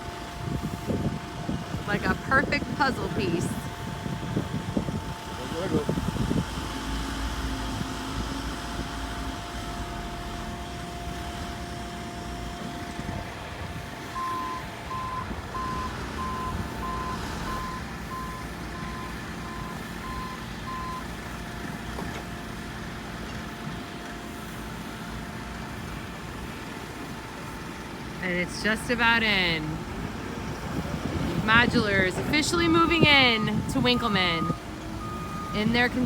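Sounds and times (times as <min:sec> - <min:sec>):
heavy machinery running: 0:00.0 - 0:36.0
backup alarm beeping: 0:14.2 - 0:21.1, 0:31.5 - 0:36.0.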